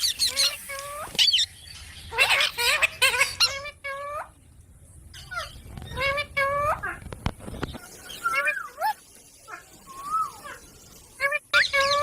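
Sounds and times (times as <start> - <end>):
parrot squawking and chattering: 0.0 - 4.4, 5.1 - 7.1, 11.2 - 12.0.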